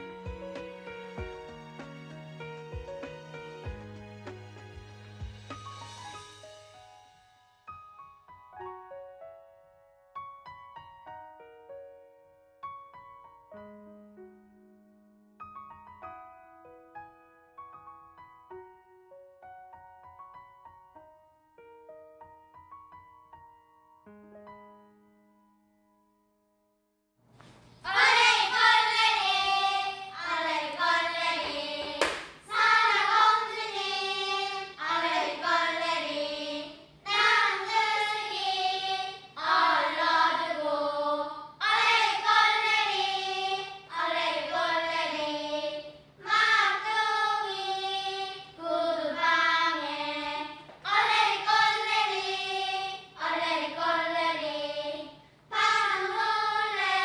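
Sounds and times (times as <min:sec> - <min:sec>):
choir singing: 0:27.8 - 0:57.0.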